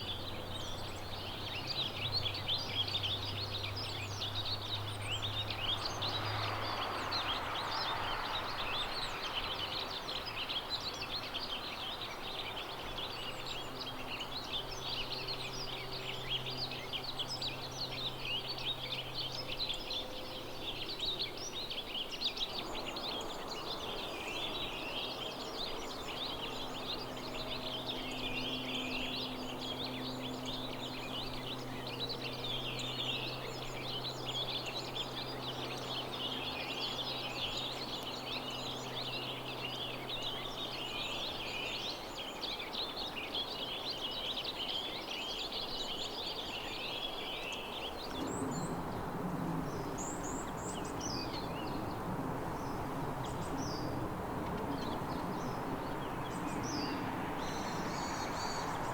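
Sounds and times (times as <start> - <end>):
songbirds chirping: 0.0 - 58.9
faint low hum: 48.0 - 58.9.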